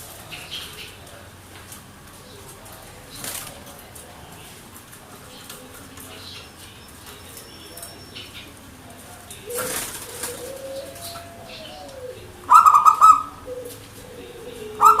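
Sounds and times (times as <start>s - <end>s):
rustle of wings: 0.0s - 8.0s, 9.0s - 12.2s
dove cooing: 7.3s - 15.0s.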